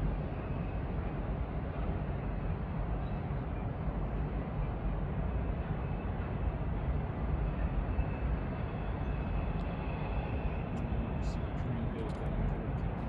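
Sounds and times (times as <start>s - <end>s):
distant freight train rumble: 0.0s - 13.0s.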